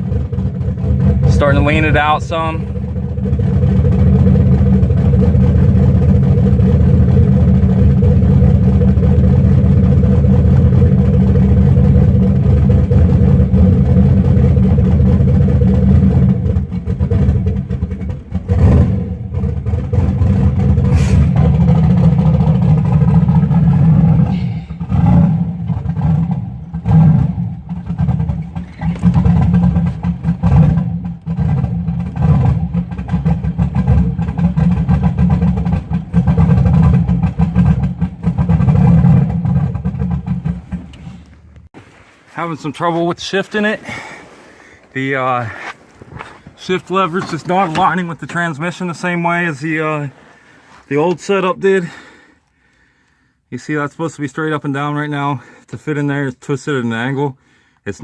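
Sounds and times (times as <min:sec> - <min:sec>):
engine at fast idle: 0:00.0 - 0:41.7.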